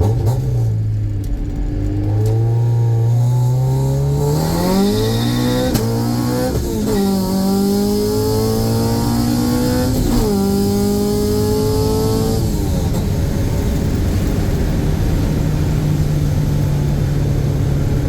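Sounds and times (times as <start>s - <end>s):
car engine revving through gears: 0.0s - 18.0s.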